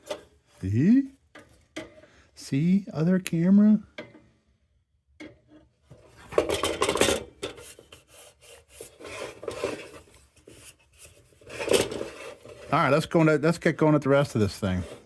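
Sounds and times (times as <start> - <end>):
scraping and rubbing on metal: 5.4 - 13.1, 14.3 - 15.0.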